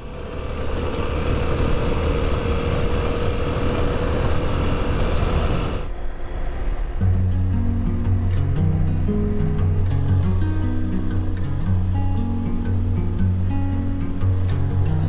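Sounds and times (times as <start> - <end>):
motorcycle engine running: 0.0 - 5.9, 7.0 - 15.0
guitar music: 7.0 - 15.0.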